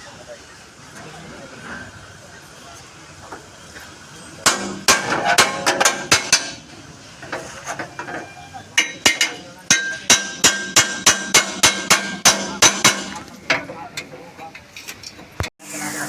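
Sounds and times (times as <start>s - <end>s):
hammer ringing on sheet metal: 4.4s - 6.6s, 8.8s - 13.2s.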